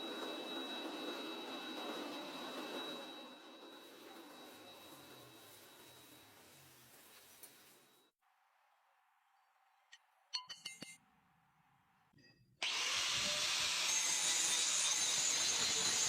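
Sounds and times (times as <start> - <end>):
power grinder on steel: 12.6 - 16.0.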